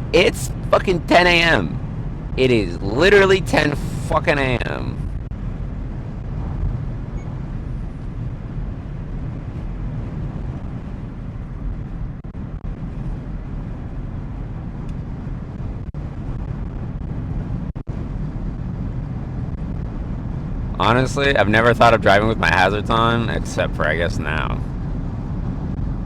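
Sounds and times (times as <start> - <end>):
car cabin road and engine rumble: 2.4 - 10.7.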